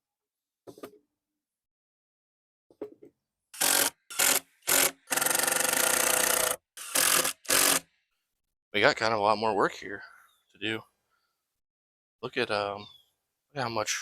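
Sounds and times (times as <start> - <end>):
power drill driving screws into wood: 3.6 - 7.9.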